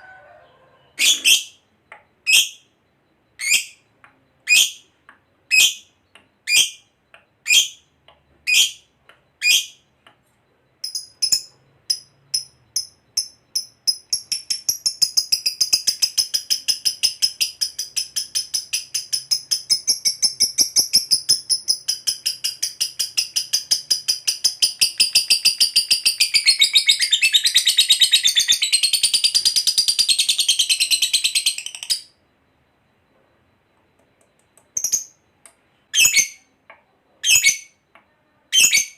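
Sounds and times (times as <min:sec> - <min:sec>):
lovebird chattering trill: 0:10.8 - 0:32.1.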